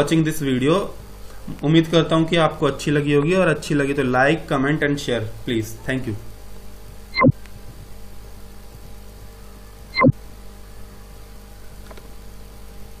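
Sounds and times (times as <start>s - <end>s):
electrical hum: 0.0s - 13.0s
loud tone falling in pitch: 9.9s - 10.2s.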